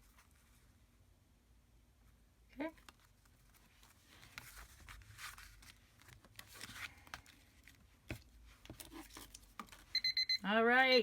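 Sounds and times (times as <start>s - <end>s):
paper rustling: 2.8s - 9.9s.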